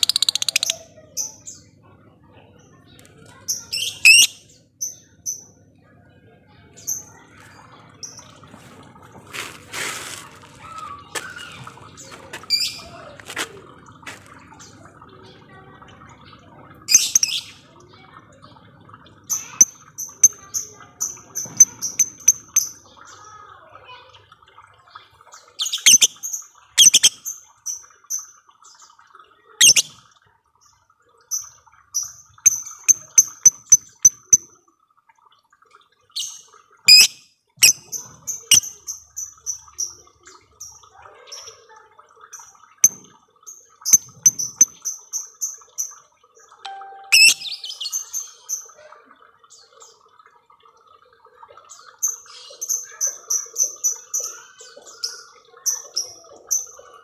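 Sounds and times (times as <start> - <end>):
lovebird chirping rapidly: 0.0 - 0.7, 3.6 - 4.4, 26.8 - 27.1, 29.6 - 29.9, 36.9 - 37.8, 46.7 - 48.1.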